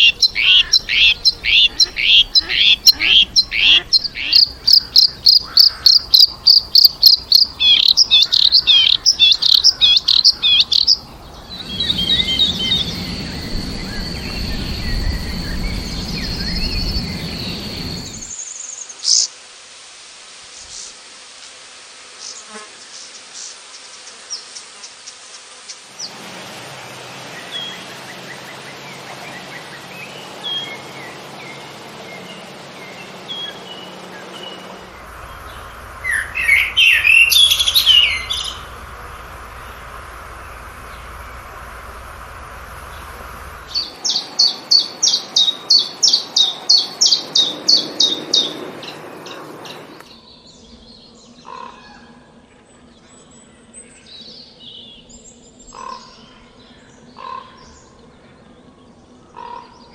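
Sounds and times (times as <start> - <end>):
low hum: 0.0 - 18.3, 26.0 - 55.6
birds calling and chirping: 0.0 - 19.3, 27.2 - 59.9
high steady bird trill: 0.0 - 19.3, 27.2 - 52.0
low rumble: 10.9 - 18.3, 34.6 - 44.4.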